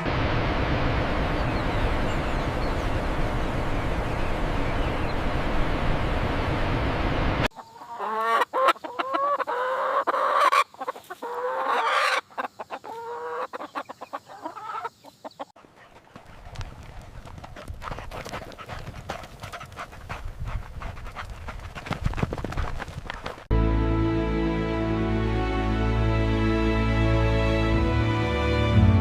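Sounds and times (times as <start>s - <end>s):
steady rushing noise: 0.0s - 7.5s
chickens clucking: 7.5s - 21.6s.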